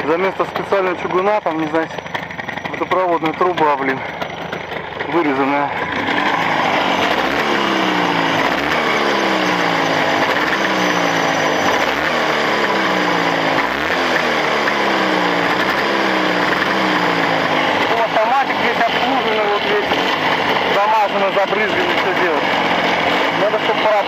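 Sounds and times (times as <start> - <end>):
two-stroke motorcycle engine revving: 0.0 - 24.0.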